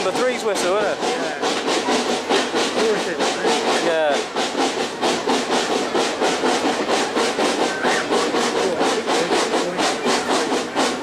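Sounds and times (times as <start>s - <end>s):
steam train chuffing uphill: 0.0s - 11.0s.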